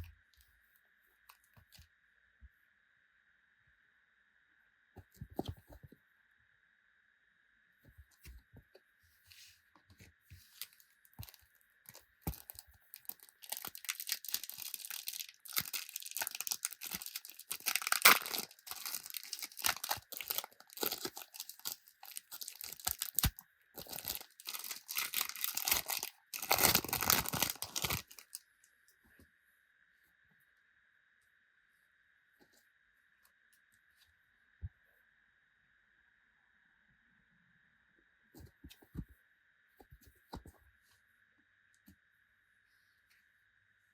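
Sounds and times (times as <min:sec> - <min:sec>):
card packets tearing open: 0:12.3 - 0:28.4
wrappers crinkling: 0:12.3 - 0:28.4.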